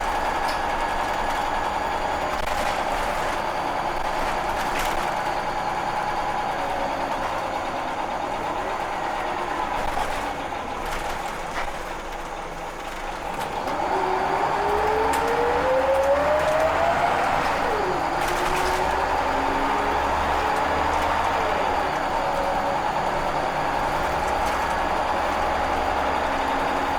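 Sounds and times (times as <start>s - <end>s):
bus engine running: 0.0s - 26.9s
rising engine whine: 13.5s - 26.9s.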